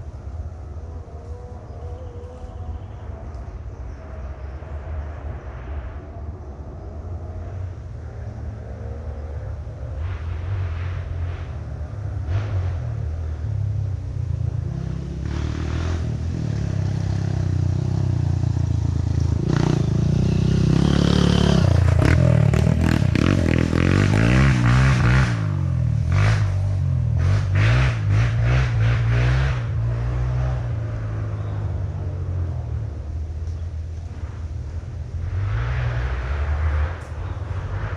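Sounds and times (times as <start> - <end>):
motorcycle engines revving: 0.0 - 37.9.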